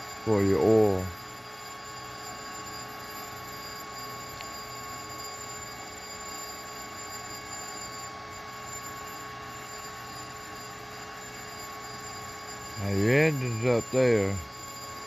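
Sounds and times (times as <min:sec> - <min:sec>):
locomotive warning alarm ringing: 0:00.0 - 0:15.0
pumps humming: 0:08.4 - 0:15.0.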